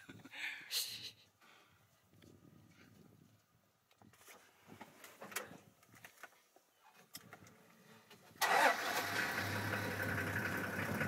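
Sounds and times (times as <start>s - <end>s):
faint clicks and rustles: 2.0s - 8.4s
engine starting and idling: 8.4s - 11.0s.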